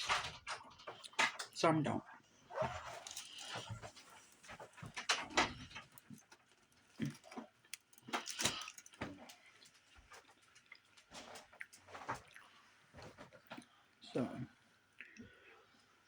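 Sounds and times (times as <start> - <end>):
person chewing food: 3.2 - 14.0.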